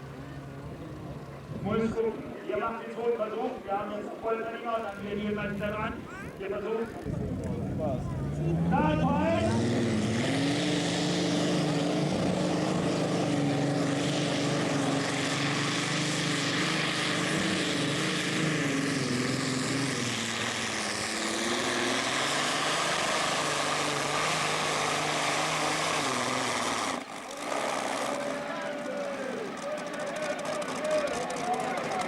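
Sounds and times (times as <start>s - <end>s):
tractor engine at full throttle: 0.0s - 2.1s, 5.1s - 32.0s.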